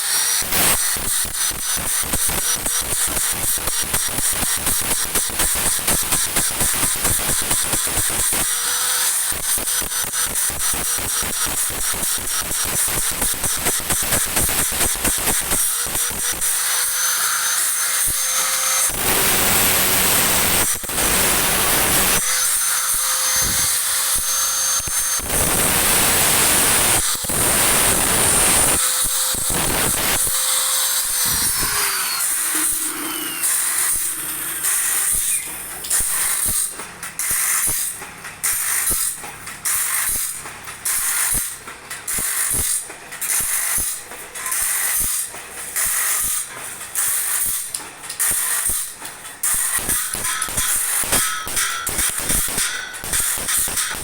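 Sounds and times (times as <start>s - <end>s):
power tool whining: 0.0s - 37.9s
harsh grinding noise: 0.0s - 54.0s.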